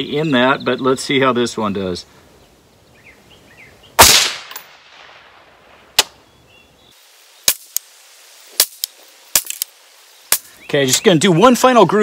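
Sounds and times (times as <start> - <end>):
rifle shot with echo: 4.0 - 6.1.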